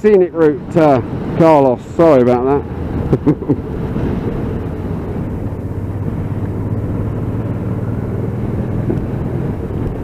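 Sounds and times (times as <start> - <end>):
road and wind noise: 0.0 - 10.0
motorcycle engine running: 4.4 - 10.0.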